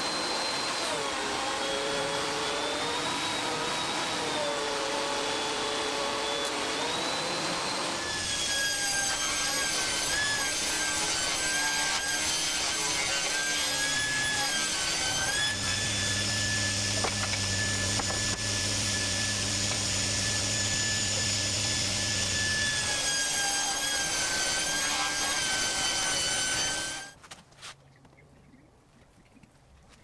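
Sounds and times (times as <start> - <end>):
power tool cutting wood: 0.0 - 27.2.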